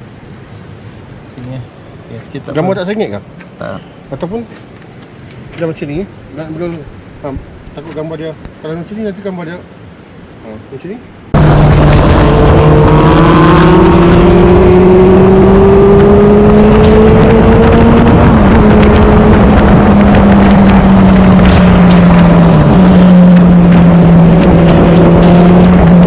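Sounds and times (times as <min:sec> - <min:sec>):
motorcycle engine at speed: 0:11.4 - 0:26.0.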